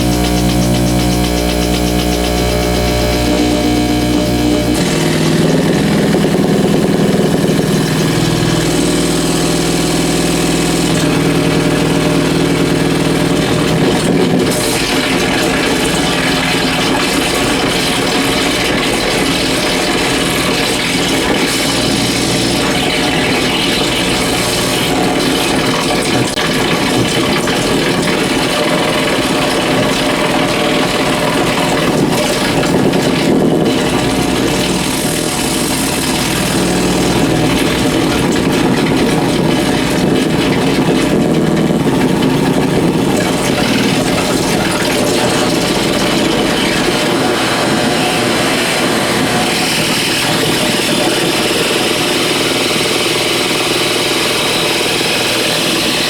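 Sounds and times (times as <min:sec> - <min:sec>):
steady electrical hum: 0:00.0 - 0:26.4
loud electrical interference noise: 0:00.0 - 0:56.0.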